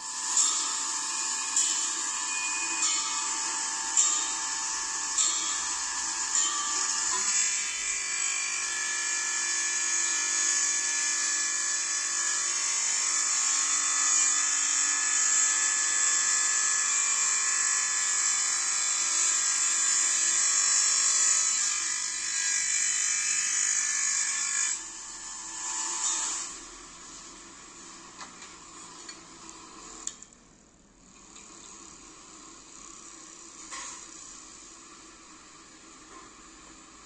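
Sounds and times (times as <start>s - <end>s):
wet tile cutter whining: 0.0s - 26.7s.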